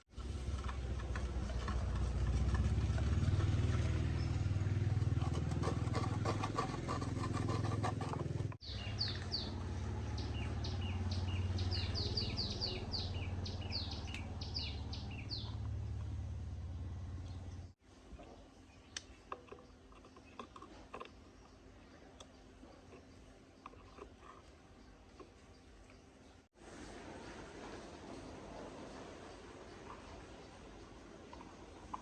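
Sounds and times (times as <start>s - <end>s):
low mechanical hum: 0.1s - 32.0s
bird chirping: 8.6s - 16.2s.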